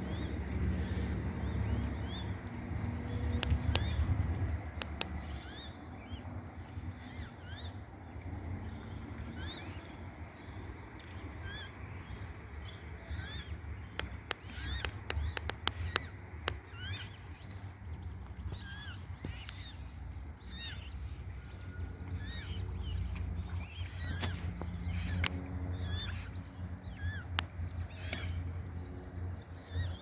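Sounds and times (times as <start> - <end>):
steady low rumble: 0.0 - 30.0
water-bird chicks begging calls: 0.0 - 30.0
sharp clicks: 3.3 - 5.2, 13.8 - 19.7.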